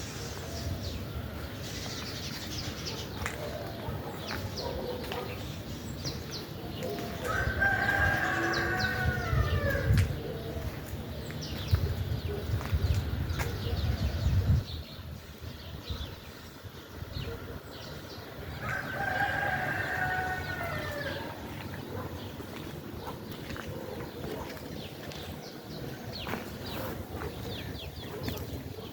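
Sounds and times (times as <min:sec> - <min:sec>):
rooster crowing: 0:07.3 - 0:09.9, 0:18.6 - 0:21.4.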